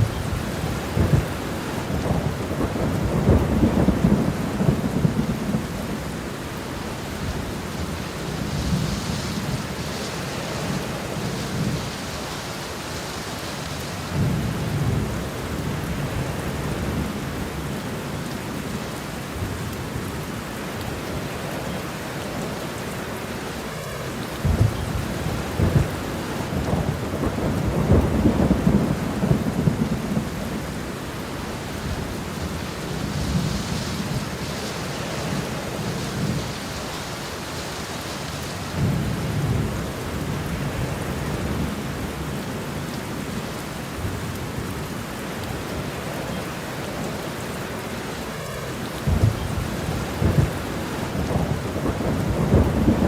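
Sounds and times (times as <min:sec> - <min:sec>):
thunder rolling: 0:00.0 - 0:06.1, 0:23.7 - 0:37.4, 0:48.4 - 0:53.0
steady rain: 0:00.0 - 0:53.0.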